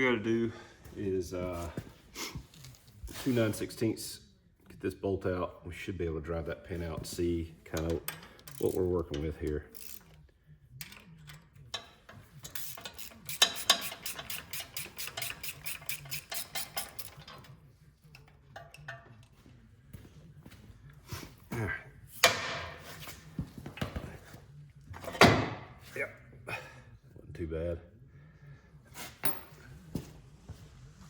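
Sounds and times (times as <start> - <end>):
ratchet wrench clicking: 7.8 - 10.2, 10.8 - 17.5.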